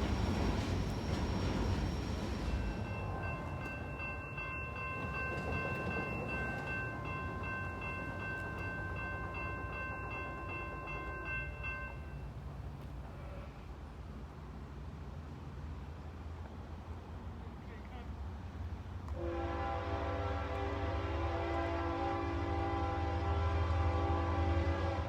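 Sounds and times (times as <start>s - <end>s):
train rumbling: 0.0s - 25.0s
locomotive air horn: 19.1s - 25.0s.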